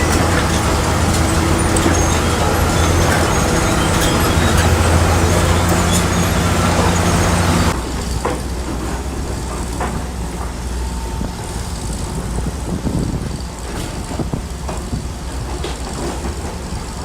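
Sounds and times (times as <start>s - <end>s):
metallic clanks: 0.0s - 10.5s
diesel engine droning: 0.0s - 17.0s.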